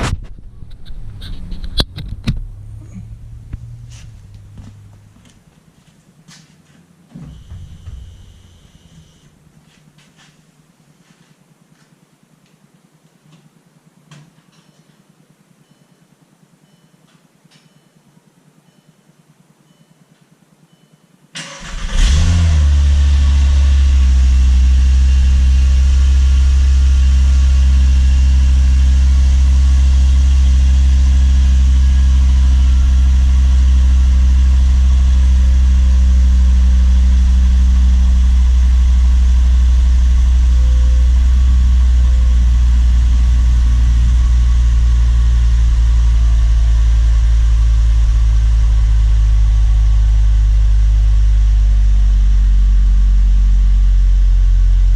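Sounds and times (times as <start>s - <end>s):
car engine idling: 1.1s - 6.2s, 6.9s - 9.5s, 21.5s - 54.9s.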